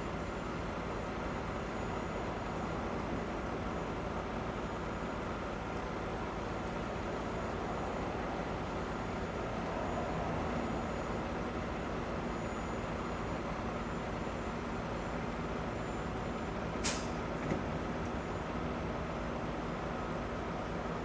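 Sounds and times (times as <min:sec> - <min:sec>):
air brake hiss: 0:16.8 - 0:17.2.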